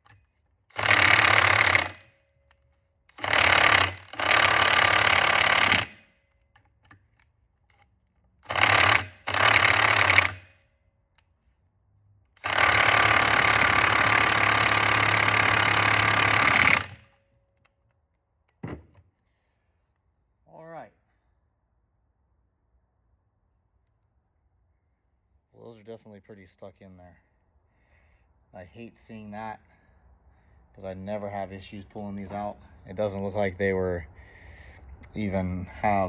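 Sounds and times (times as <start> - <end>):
impact wrench hammering: 0.0 - 2.2, 3.1 - 6.1, 8.4 - 10.6, 12.4 - 17.2.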